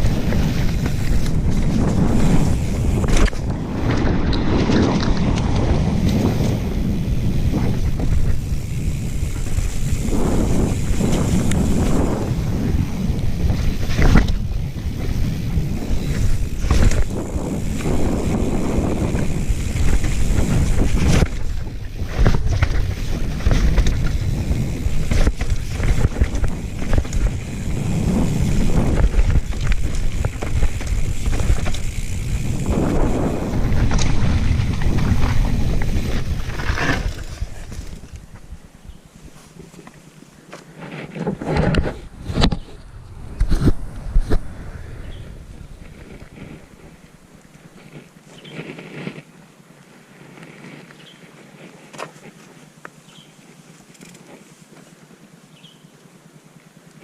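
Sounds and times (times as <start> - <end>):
bike knocks and rattles: 0.0 - 38.7, 39.3 - 44.5
wind buffeting microphone: 0.0 - 39.4, 41.4 - 48.7
bike rolling on dirt trail: 0.0 - 57.0.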